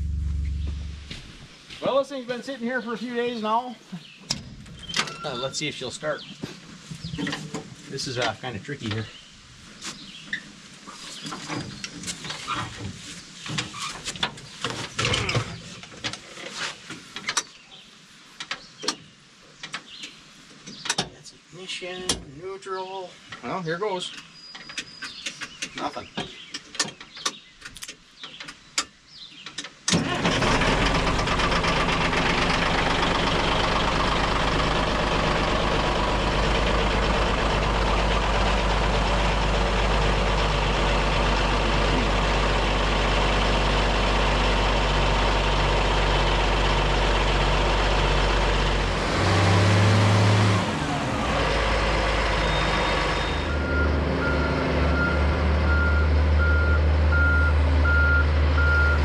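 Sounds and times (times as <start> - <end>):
heavy machine engine running: 0.0 - 1.4, 30.0 - 59.0
reversing alarm beeping: 52.4 - 59.0.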